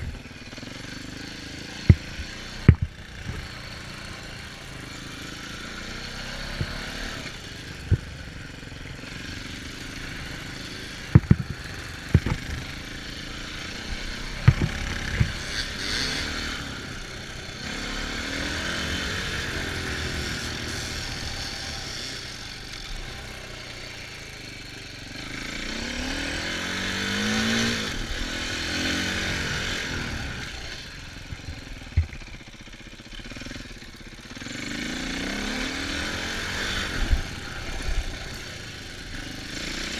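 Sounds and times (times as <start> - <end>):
dirt bike engine revving: 0.0 - 39.9
sharp knocks: 2.7 - 3.4, 11.1 - 12.6.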